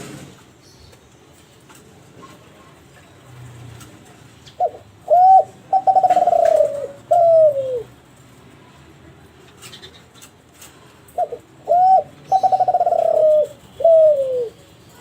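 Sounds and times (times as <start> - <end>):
dove cooing: 4.5 - 8.0, 11.2 - 15.0.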